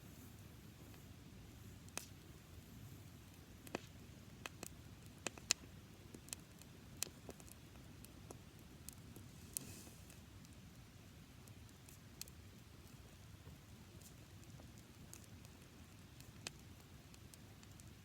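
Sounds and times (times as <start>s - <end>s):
faint steady hiss: 0.0s - 18.0s
campfire crackling pops: 1.9s - 2.2s, 3.3s - 10.6s, 11.4s - 18.0s.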